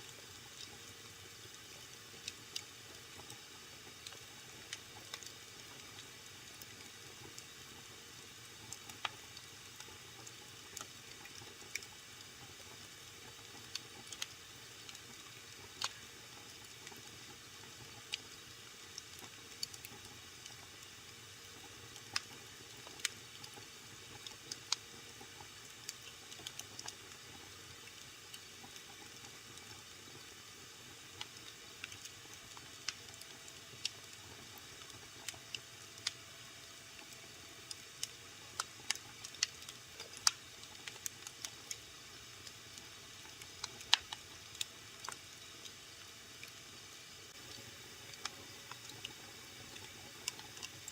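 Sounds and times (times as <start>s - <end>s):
wood fire crackling: 0.1s - 20.9s, 21.5s - 30.4s, 31.0s - 46.5s, 47.3s - 50.9s.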